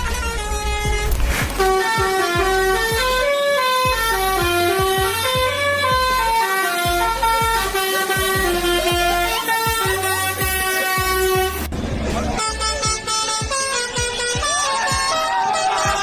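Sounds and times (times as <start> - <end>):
musical truck horn tune: 0.0 - 16.0
thumping drum beat: 0.8 - 11.7.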